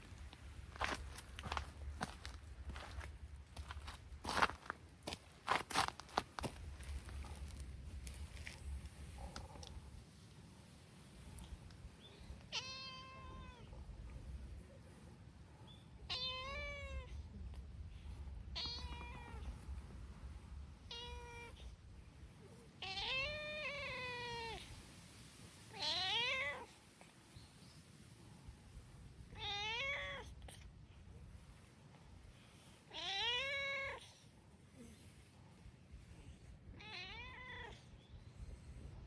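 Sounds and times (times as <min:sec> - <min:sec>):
cat meowing: 0:12.5 - 0:13.7, 0:16.1 - 0:17.2, 0:18.6 - 0:19.5, 0:20.9 - 0:21.7, 0:22.8 - 0:24.6, 0:25.8 - 0:26.7, 0:29.3 - 0:30.4, 0:32.9 - 0:34.0, 0:36.8 - 0:37.8.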